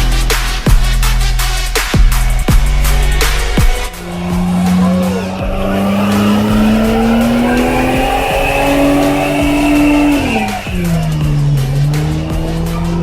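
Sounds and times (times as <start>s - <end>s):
car engine revving high: 2.5s - 13.0s
tyres squealing: 3.9s - 11.4s.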